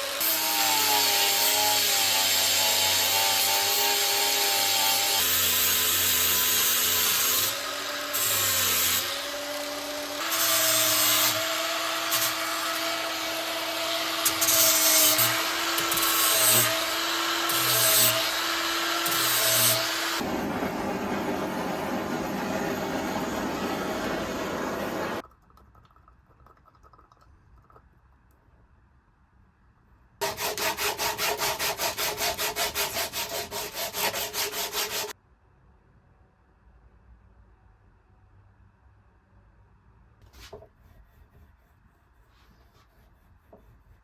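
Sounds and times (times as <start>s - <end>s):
angle grinder grinding steel: 0.1s - 20.3s.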